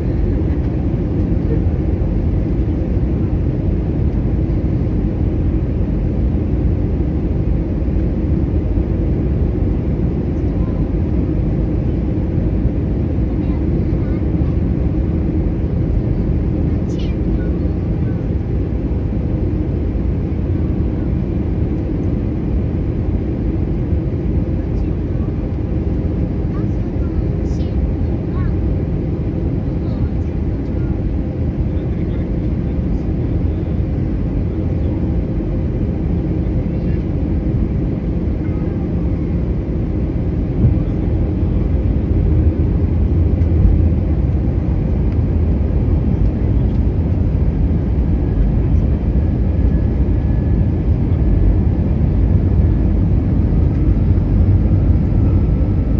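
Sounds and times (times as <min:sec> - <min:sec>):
aircraft engine rumble: 0:00.0 - 0:55.9.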